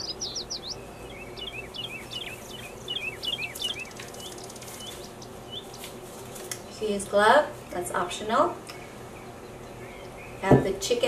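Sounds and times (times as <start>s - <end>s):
small bird chirping: 0.0s - 5.9s.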